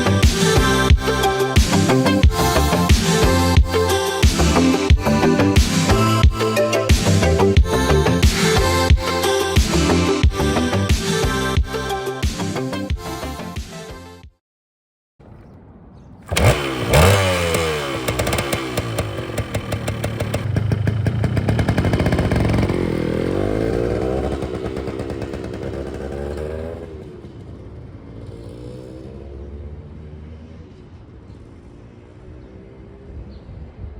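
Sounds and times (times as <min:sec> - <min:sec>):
two-stroke motorcycle engine revving: 0:16.3 - 0:29.4.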